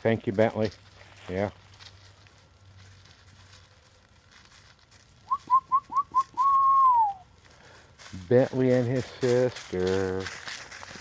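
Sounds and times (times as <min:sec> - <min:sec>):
person whistling: 0:05.2 - 0:07.2.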